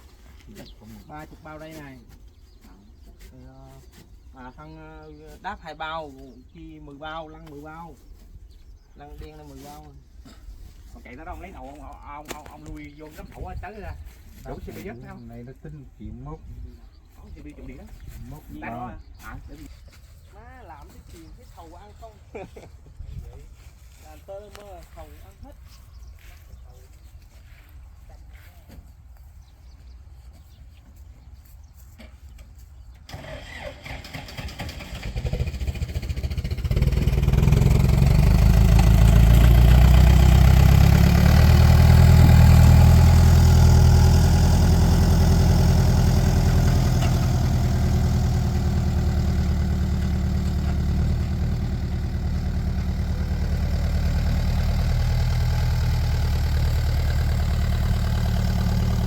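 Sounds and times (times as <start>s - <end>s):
engine starting and running: 33.0s - 59.0s.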